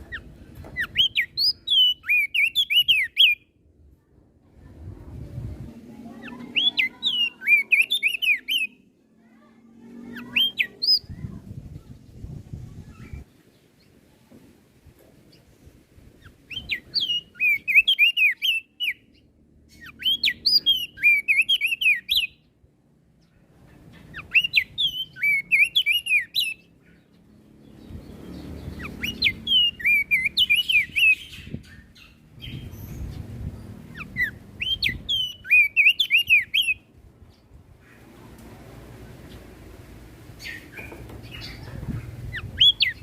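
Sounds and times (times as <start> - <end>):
bird singing high chirping notes: 0.1 - 3.5, 6.2 - 8.9, 10.1 - 11.3, 16.2 - 22.5, 24.1 - 26.8, 27.6 - 36.9, 40.4 - 43.0.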